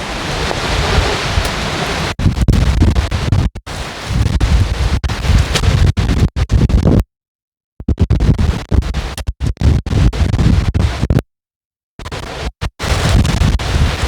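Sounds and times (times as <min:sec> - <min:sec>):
wind gusts buffeting microphone: 0:00.0 - 0:03.1.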